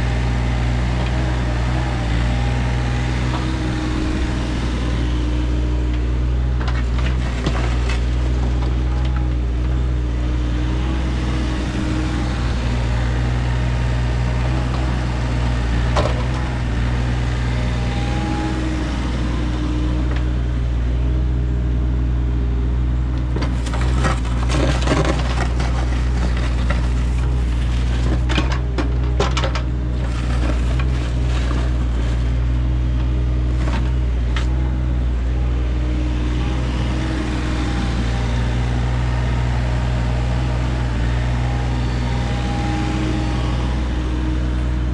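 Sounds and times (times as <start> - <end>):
heavy equipment engine running: 0.0 - 44.9
clanks and knocks: 23.3 - 32.2.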